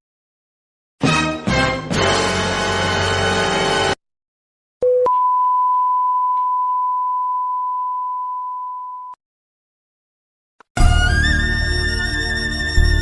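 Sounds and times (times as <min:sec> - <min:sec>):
background music: 0:01.0 - 0:04.0, 0:10.8 - 0:13.0.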